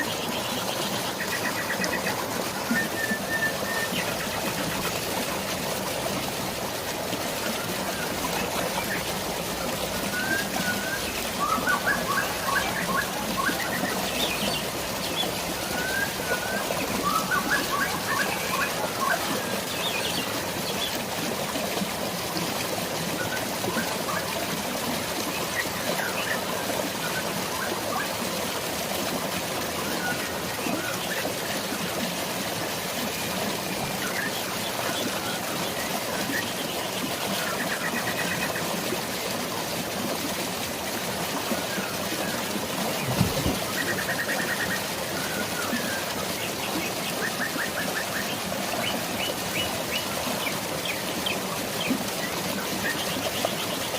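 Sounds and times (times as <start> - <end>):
running water: 0.0 - 53.9
birds chirping: 42.9 - 53.9.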